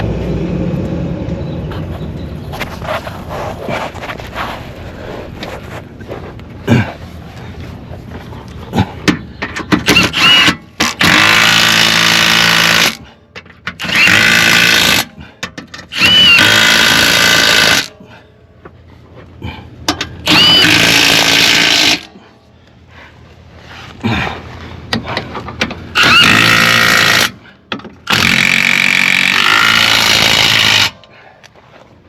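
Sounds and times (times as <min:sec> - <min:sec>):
power tool driving bolts: 0:09.5 - 0:13.0, 0:13.6 - 0:17.9, 0:20.2 - 0:22.1, 0:25.6 - 0:31.0
sharp clicks and knocks: 0:24.9 - 0:25.9.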